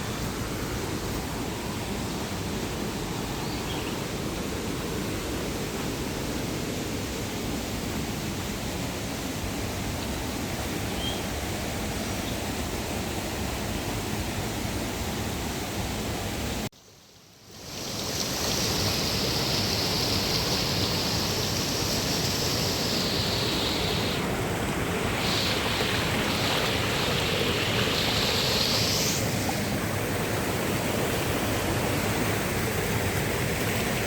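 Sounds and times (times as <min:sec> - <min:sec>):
rushing falling water: 0:17.4 - 0:34.0.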